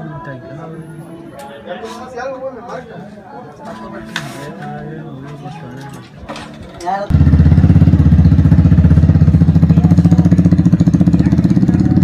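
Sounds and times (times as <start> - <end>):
small motorcycle engine running: 7.1 - 12.0.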